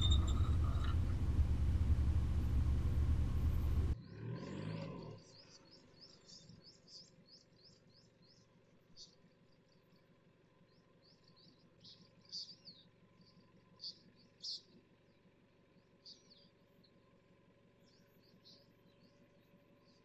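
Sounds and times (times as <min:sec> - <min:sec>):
faint low hum: 0:00.0 - 0:04.0
birds chirping: 0:00.0 - 0:10.0, 0:10.7 - 0:17.1.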